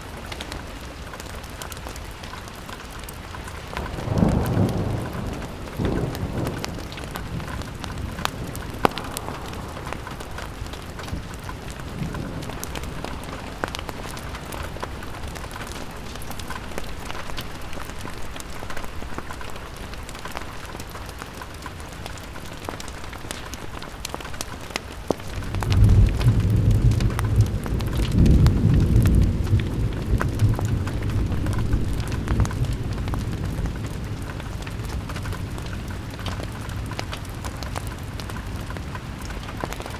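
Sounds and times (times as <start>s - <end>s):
rain on a window: 0.0s - 39.9s
sharp ticks and pops: 1.5s - 39.9s
low rumble: 8.4s - 11.4s.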